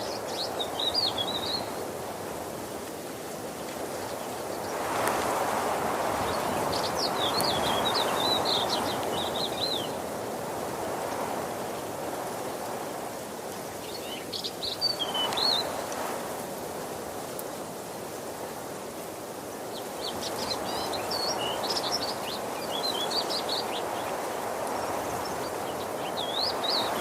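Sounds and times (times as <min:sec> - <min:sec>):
songbird chirping: 0:00.0 - 0:01.9, 0:06.1 - 0:10.0, 0:13.8 - 0:15.8, 0:19.7 - 0:27.0
waterfall rushing: 0:19.7 - 0:27.0.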